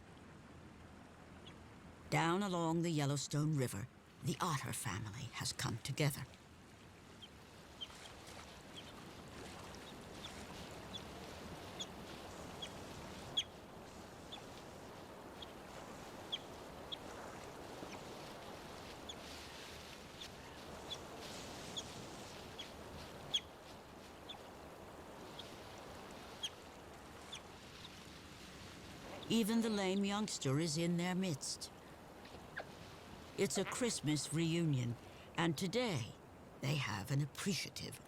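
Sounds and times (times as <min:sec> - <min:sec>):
otters chirping: 0:16.2 - 0:17.1, 0:21.7 - 0:23.5.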